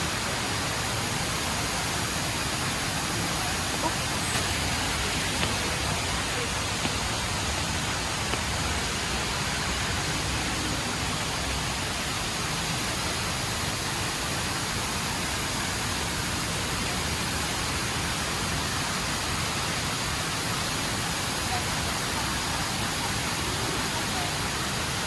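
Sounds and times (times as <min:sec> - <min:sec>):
waterfall rushing into pool: 0:00.0 - 0:25.0.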